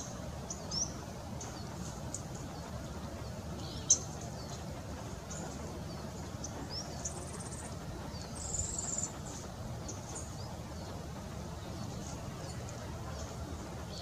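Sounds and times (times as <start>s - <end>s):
low background rumble: 0.0s - 14.0s
small birds chirping: 0.0s - 14.0s.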